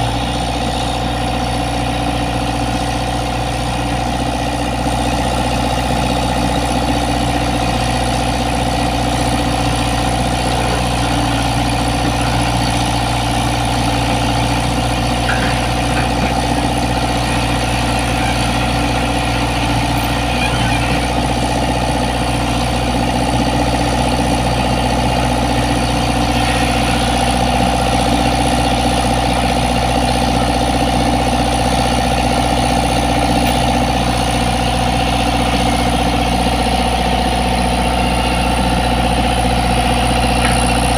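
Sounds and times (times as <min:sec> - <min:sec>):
excavator diesel engine idling: 0:00.0 - 0:40.9.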